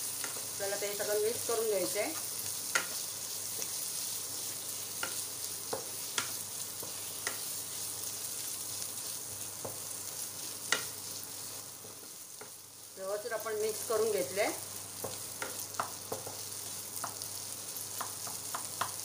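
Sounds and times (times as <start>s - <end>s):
potatoes sizzling in hot oil: 0.0s - 19.0s
spatula knocking on pan: 5.0s - 7.5s, 9.6s - 9.9s, 15.0s - 16.4s, 17.0s - 17.2s, 17.9s - 19.0s.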